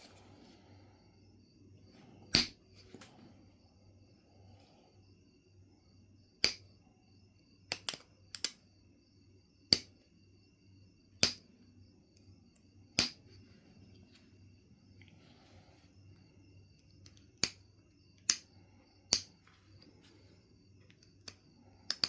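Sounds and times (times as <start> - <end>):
flint knapping clicks: 2.3 - 3.1, 7.7 - 8.6, 13.0 - 13.2, 16.8 - 17.6, 18.2 - 18.5, 19.1 - 19.4, 20.9 - 22.0.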